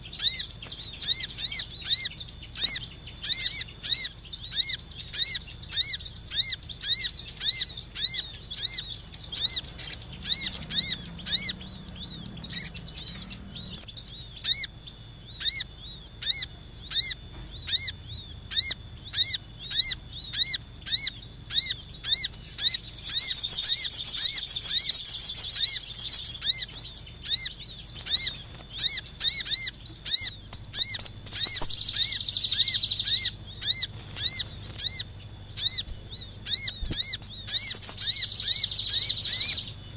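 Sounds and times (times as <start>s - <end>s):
whistled bird note: 0.0s - 39.8s
buzzy bird trill: 0.0s - 39.9s.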